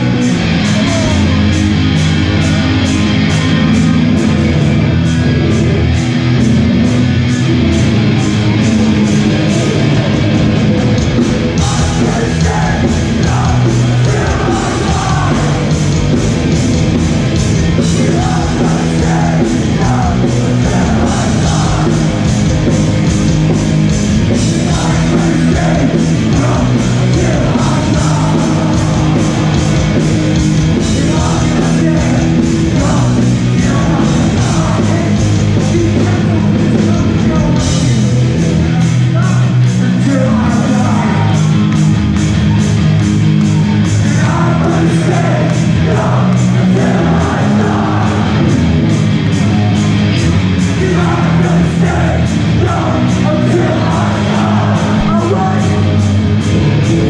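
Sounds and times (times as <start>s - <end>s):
shouted vocals: 0.0s - 4.1s, 11.5s - 16.2s, 17.8s - 22.5s, 24.4s - 37.6s, 38.5s - 41.7s, 42.3s - 56.0s
bass guitar: 0.0s - 57.0s
distorted guitars: 0.0s - 57.0s
driving drumbeat: 0.0s - 57.0s.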